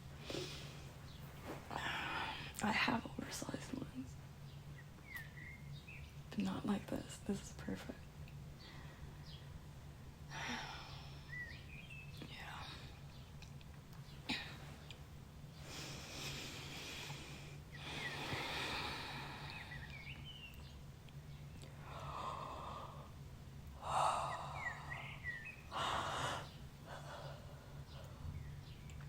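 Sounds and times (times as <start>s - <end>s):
steady low hum: 0.0s - 29.0s
person breathing and sighing: 0.2s - 2.6s
faint bird chirps: 3.2s - 9.6s, 10.3s - 15.0s, 16.4s - 23.1s, 23.8s - 29.0s.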